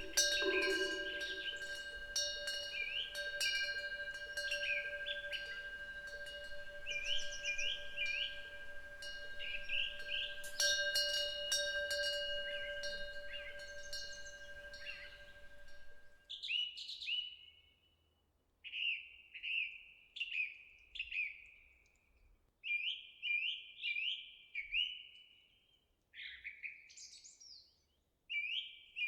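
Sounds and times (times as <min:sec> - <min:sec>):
songbird whistling: 0:00.0 - 0:01.8
wind chime ringing: 0:00.0 - 0:16.2.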